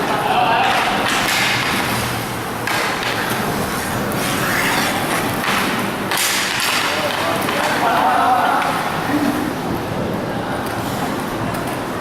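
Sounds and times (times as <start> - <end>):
hockey sticks and puck clacking: 0.0 - 8.9
skate wheels rolling: 0.0 - 12.0.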